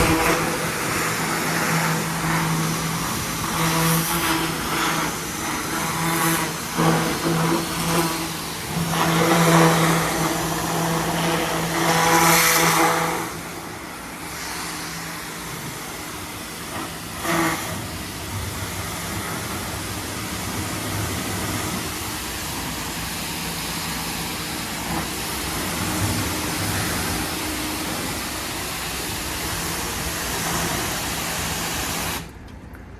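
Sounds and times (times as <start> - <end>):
hissing spray: 0.0 - 32.4
machine engine hum: 0.0 - 32.9.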